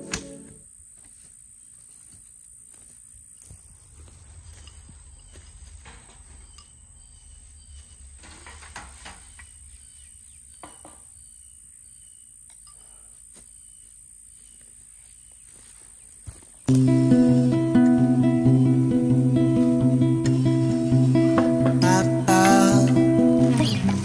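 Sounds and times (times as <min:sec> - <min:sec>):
insects chirring: 0:00.0 - 0:23.9
strummed acoustic guitar music: 0:16.7 - 0:24.0.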